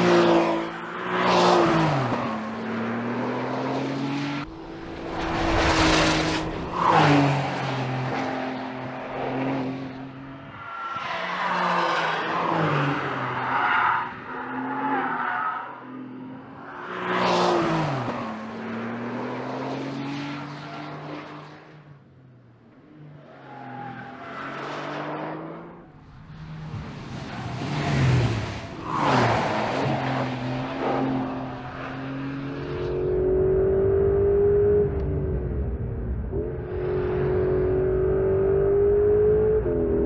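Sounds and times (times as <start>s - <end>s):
sports car exhaust passing by: 4.2s - 10.4s.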